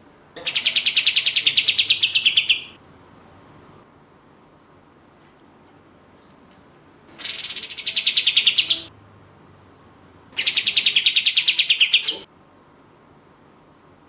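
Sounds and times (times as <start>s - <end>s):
songbird trilling: 0.4s - 2.8s, 7.2s - 8.9s, 10.4s - 12.3s.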